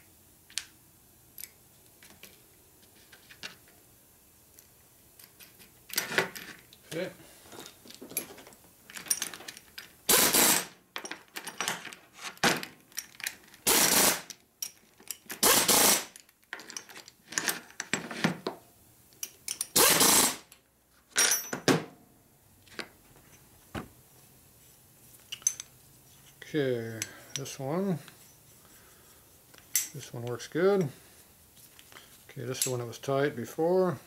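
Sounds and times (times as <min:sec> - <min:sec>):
metal parts clicking and knocking: 0:07.9 - 0:10.0, 0:10.9 - 0:13.7, 0:14.3 - 0:18.1, 0:19.1 - 0:20.2, 0:25.3 - 0:25.7, 0:29.6 - 0:30.0
workshop tool bursts: 0:10.1 - 0:10.8, 0:13.6 - 0:14.3, 0:15.4 - 0:16.2, 0:19.7 - 0:20.5.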